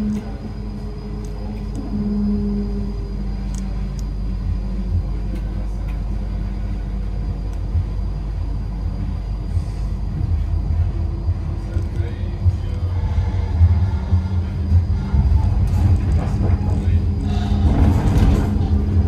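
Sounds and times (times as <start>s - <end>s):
humming tone: 0.0s - 19.0s
train rumble: 0.0s - 19.0s.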